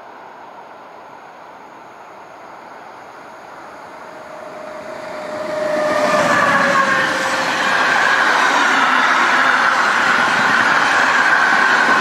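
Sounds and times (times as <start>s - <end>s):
freight train rushing past: 2.1s - 12.0s
whining tone: 3.8s - 12.0s.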